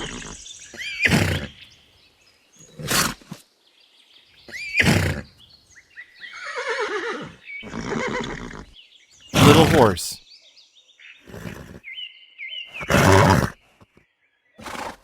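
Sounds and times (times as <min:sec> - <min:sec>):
horse neighing: 0:06.4 - 0:08.7, 0:09.4 - 0:10.2, 0:12.8 - 0:13.6
horse snorting: 0:09.4 - 0:10.1, 0:12.8 - 0:13.6, 0:14.6 - 0:15.0.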